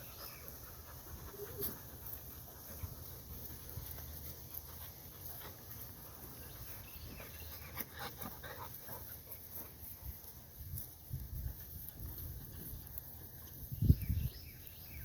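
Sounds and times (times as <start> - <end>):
puppies panting and scuffling: 0.0 - 15.0.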